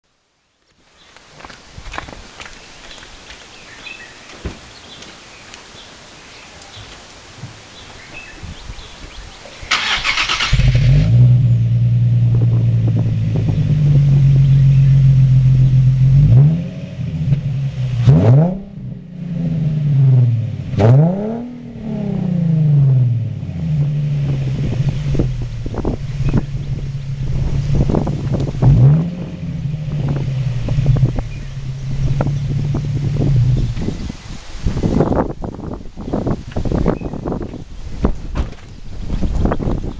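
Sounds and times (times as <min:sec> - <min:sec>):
engine cranking: 0:09.7 - 0:11.3
car engine idling and revving: 0:10.0 - 0:34.0.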